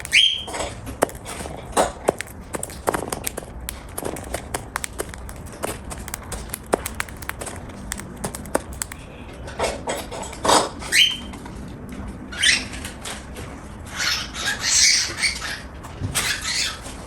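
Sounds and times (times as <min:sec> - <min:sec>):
bird beak crunching food: 0:00.0 - 0:09.0
scratchy rustling: 0:00.0 - 0:09.0.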